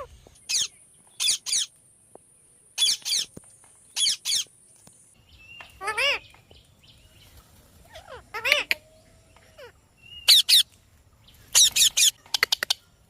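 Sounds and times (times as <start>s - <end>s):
parakeets calling shrilly: 0.0s - 1.7s, 2.8s - 4.5s, 5.5s - 6.4s, 7.9s - 10.7s, 11.4s - 12.8s
parakeet squawk: 5.8s - 6.2s, 7.9s - 8.8s.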